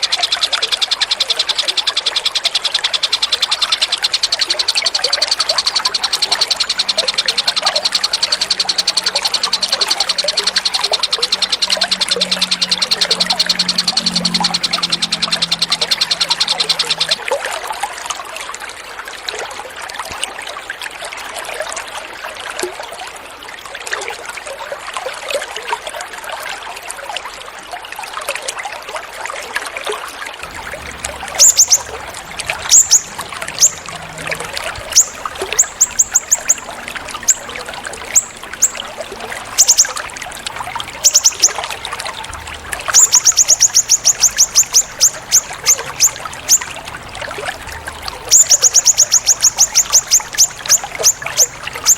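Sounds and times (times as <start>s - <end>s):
songbird calling: 0.0s - 17.2s, 30.4s - 51.9s
water trickling: 0.0s - 51.9s.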